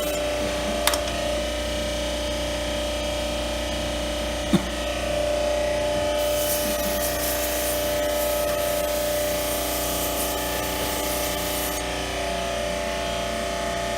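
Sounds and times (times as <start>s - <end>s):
pump whining: 0.0s - 2.1s, 4.4s - 13.8s
water spray hissing: 6.2s - 11.9s.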